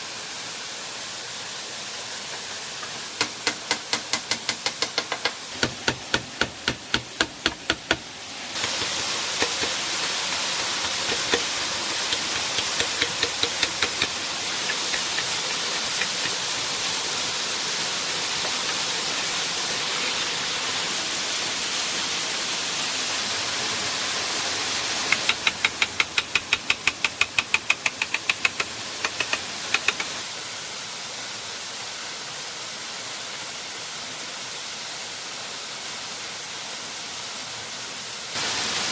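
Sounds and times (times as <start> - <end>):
falling water rushing: 1.0 - 30.8, 38.4 - 38.9
sharp knocks: 3.2 - 16.4.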